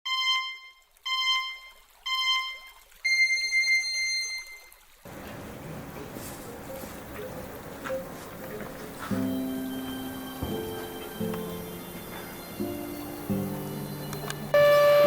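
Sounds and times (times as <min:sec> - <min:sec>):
electronic countdown beeps: 0:00.1 - 0:04.7, 0:14.6 - 0:15.0.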